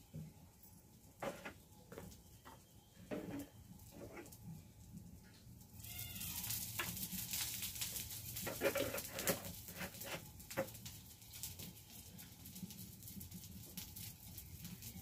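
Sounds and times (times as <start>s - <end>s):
food sizzling in a pan: 5.8s - 11.6s.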